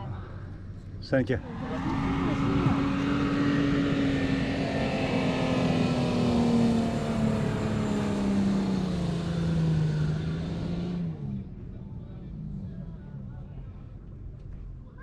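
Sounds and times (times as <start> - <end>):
vehicle engine running: 0.6 - 15.0.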